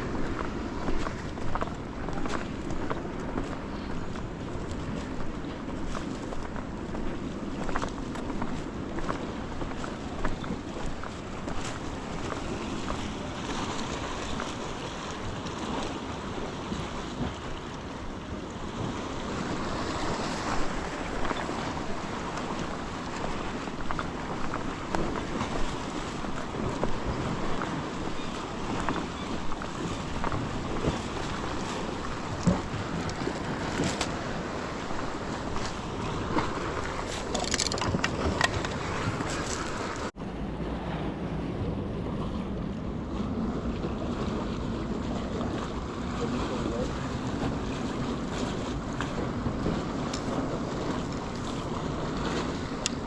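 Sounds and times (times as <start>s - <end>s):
surf washing against rocks: 0.0s - 53.0s
wind buffeting microphone: 0.0s - 53.0s
small clicks and splashes: 35.6s - 40.1s.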